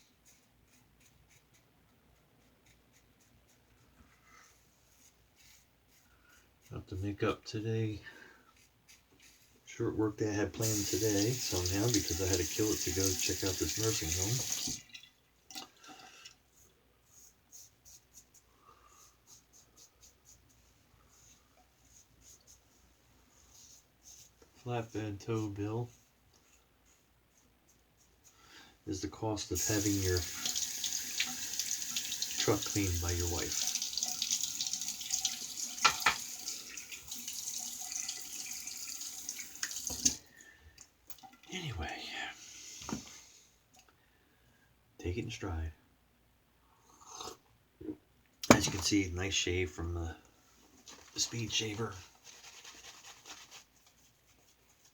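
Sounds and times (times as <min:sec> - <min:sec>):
tap water running into sink: 0:10.6 - 0:15.1, 0:29.6 - 0:40.2
quick rubbing strokes: 0:52.0 - 0:54.9.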